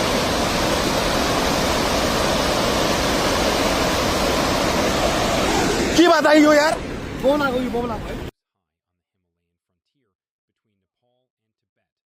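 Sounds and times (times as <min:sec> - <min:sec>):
river rushing: 0:00.0 - 0:08.3.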